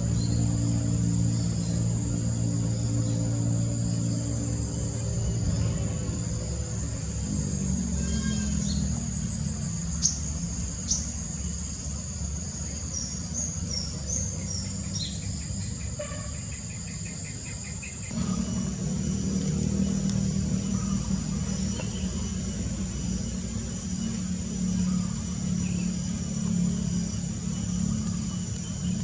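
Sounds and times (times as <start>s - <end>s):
low rumble: 0.0s - 12.2s, 18.1s - 29.0s
birds chirping: 0.0s - 29.0s
insects buzzing: 0.0s - 29.0s.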